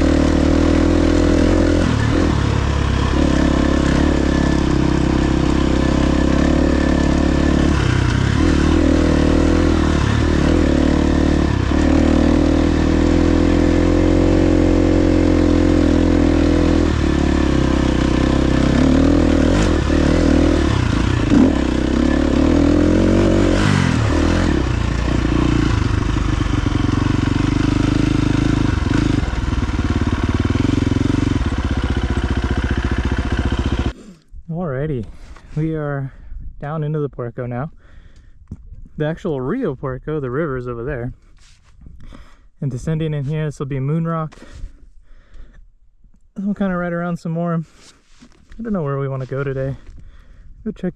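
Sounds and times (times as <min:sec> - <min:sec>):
dirt bike engine running: 0:00.0 - 0:34.0.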